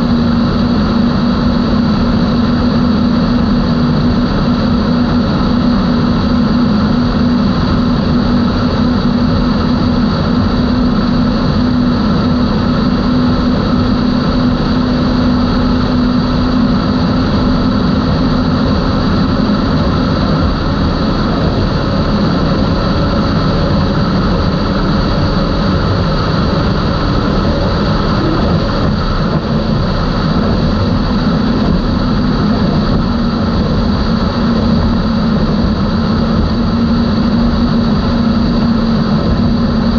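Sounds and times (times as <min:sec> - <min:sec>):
outboard engines droning: 0:00.0 - 0:39.9.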